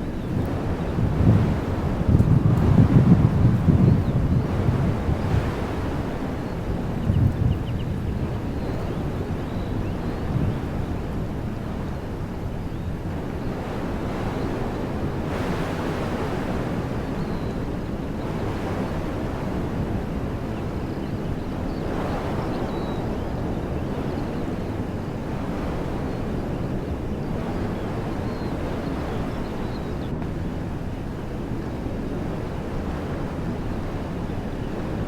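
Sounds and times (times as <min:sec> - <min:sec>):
wind blowing through trees: 0:00.0 - 0:35.0.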